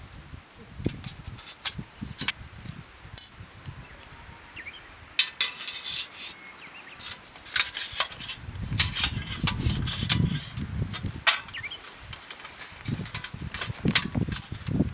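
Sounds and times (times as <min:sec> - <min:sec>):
camping gear clinking: 0:00.9 - 0:03.7, 0:05.2 - 0:14.9
handling rustle: 0:05.2 - 0:14.9.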